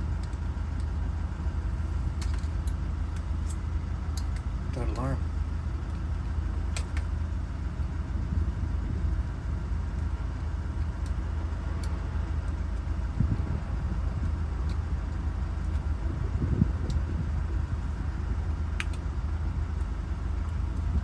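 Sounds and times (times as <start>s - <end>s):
low engine hum: 0.0s - 21.0s
faint light clicks: 6.7s - 7.1s, 18.8s - 19.1s.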